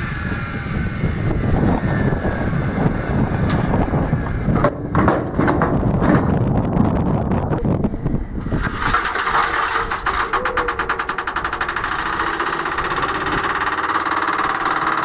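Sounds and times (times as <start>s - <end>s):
rapid knocking: 4.5s - 6.7s, 8.6s - 15.0s
washing machine spinning up: 8.4s - 15.0s.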